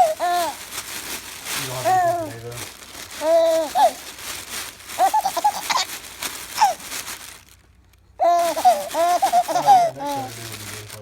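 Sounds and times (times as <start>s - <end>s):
baby laughing: 0.0s - 0.6s, 1.8s - 2.3s, 3.2s - 4.0s, 5.0s - 5.9s, 6.6s - 6.8s, 8.2s - 10.4s.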